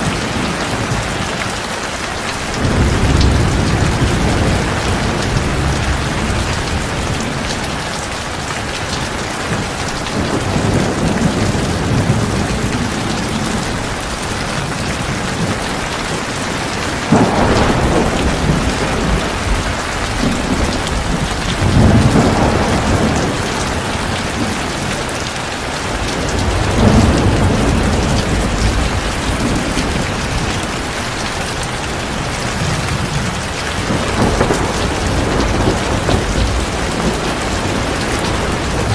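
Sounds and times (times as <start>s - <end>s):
heavy rain pouring: 0.0s - 38.9s
thunder rumbling: 2.4s - 38.9s.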